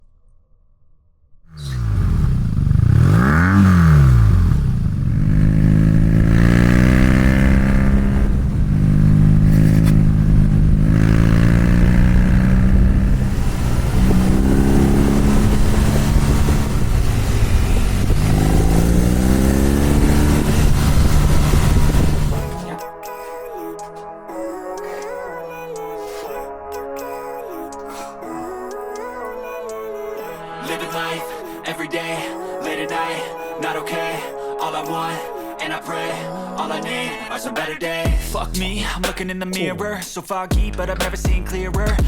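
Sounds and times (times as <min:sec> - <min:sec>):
motorcycle engine revving: 0:01.6 - 0:22.8.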